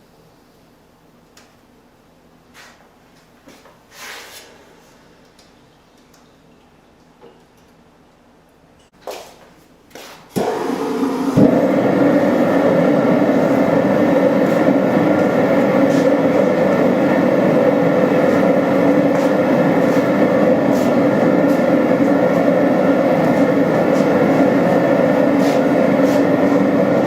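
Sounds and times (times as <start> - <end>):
forge roaring: 10.4 - 27.0.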